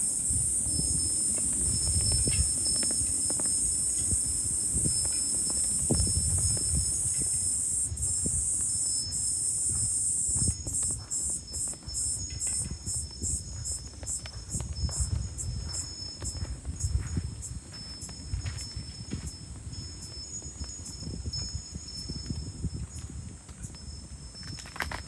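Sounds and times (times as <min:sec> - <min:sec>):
cicadas shrilling: 0:00.0 - 0:14.6
wind buffeting microphone: 0:00.0 - 0:25.0.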